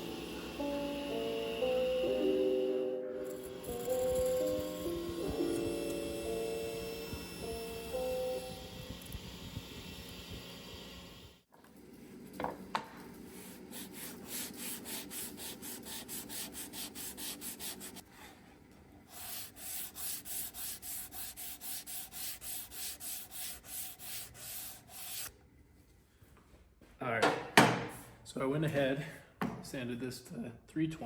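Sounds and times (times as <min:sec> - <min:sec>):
sandpaper rubbing on wood: 0:13.3 - 0:18.0, 0:19.1 - 0:25.3.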